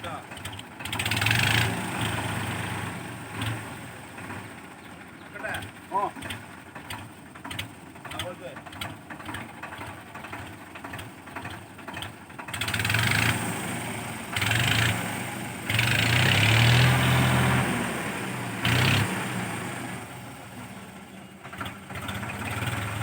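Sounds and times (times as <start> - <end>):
tractor diesel engine revving: 0.0 - 23.0.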